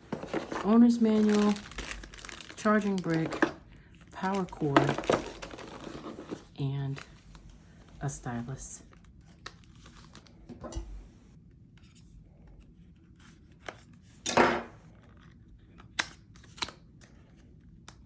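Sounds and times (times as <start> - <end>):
packaging tearing rustle: 0.0 - 7.5, 8.9 - 10.4
plastic and cardboard handling: 0.0 - 8.0.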